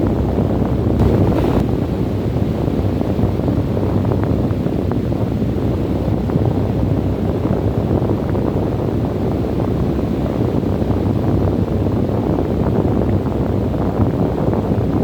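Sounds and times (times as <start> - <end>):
wind blowing: 1.0 - 2.2.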